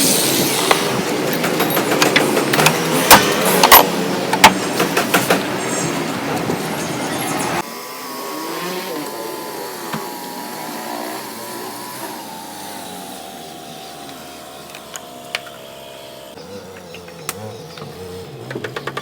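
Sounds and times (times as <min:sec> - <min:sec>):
power tool motor running: 0:06.5 - 0:19.0.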